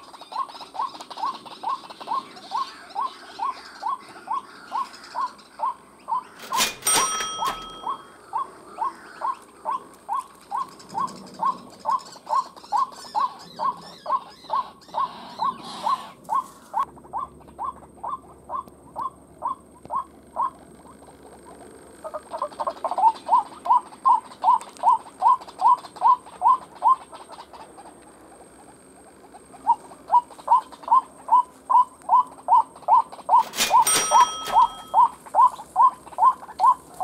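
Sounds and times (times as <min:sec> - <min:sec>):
waterhen calling: 0:00.0 - 0:20.6, 0:29.6 - 0:37.0
sharp ringing noise: 0:06.4 - 0:08.3, 0:33.4 - 0:35.4.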